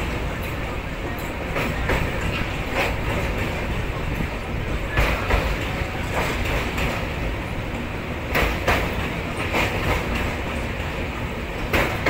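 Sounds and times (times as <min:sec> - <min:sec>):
train wheels rumbling on rails: 0:00.0 - 0:12.0
wheels clacking over rail joints: 0:00.0 - 0:12.0.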